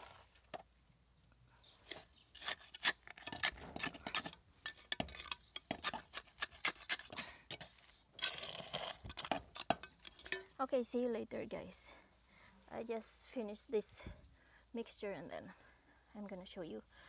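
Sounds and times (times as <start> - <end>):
wet cement scraping and knocking: 2.5 - 10.5.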